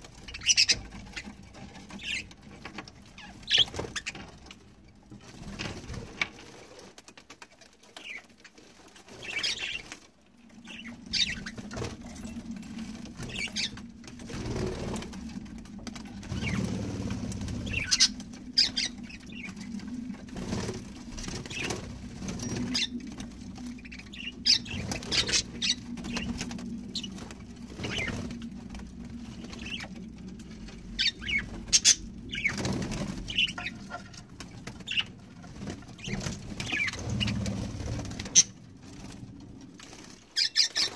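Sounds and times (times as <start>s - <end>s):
wings fluttering and splashing: 0.0s - 40.9s
steady low hum: 10.3s - 40.2s.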